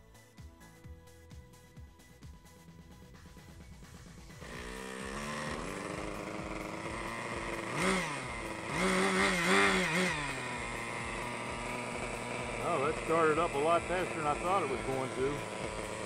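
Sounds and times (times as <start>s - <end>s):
model helicopter engine revving: 4.0s - 16.0s.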